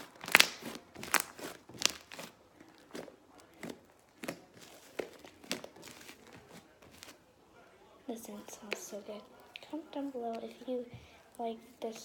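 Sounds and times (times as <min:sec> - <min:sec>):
slime crackling pops: 0:00.0 - 0:07.0.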